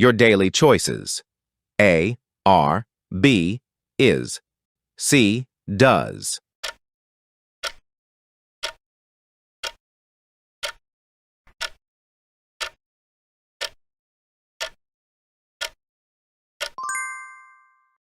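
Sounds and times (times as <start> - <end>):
timer ticking: 5.0 - 6.8, 7.6 - 7.8, 11.6 - 11.8, 12.6 - 12.8, 14.6 - 14.8, 15.6 - 15.8, 16.6 - 16.8
bright ringing chime: 16.8 - 18.0.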